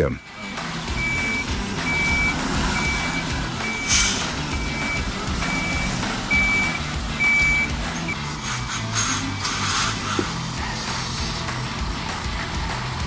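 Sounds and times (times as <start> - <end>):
diesel engine rumbling: 0.0 - 13.0
reversing alarm beeping: 0.9 - 8.3.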